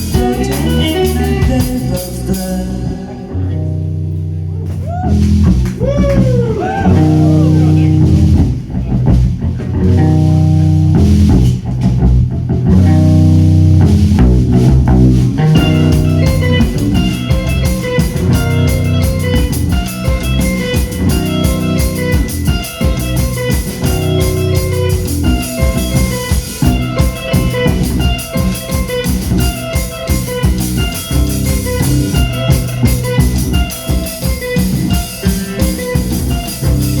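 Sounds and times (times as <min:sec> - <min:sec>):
busy drum beat: 0:00.0 - 0:03.2, 0:04.7 - 0:37.0
bass line: 0:00.0 - 0:37.0
rock band playing: 0:00.0 - 0:37.0
repeating guitar figure: 0:06.2 - 0:08.3.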